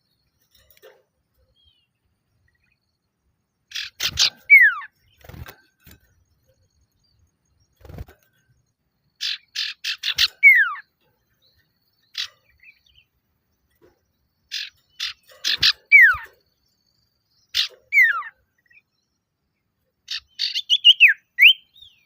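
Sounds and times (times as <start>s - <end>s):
bird chip notes and whistle: 9.2s - 10.9s, 20.1s - 22.0s.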